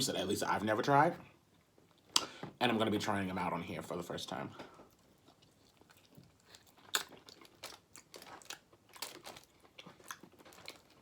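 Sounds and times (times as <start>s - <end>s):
crisp food crunching: 4.9s - 11.0s.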